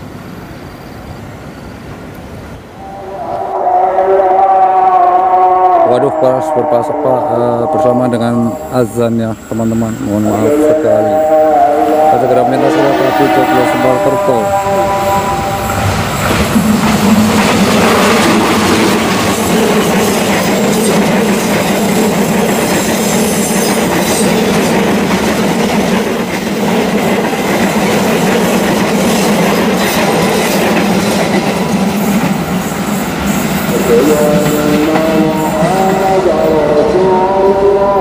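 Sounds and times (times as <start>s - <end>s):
diesel train rumbling past: 0.0s - 38.0s
high wheel squeal: 8.2s - 24.5s.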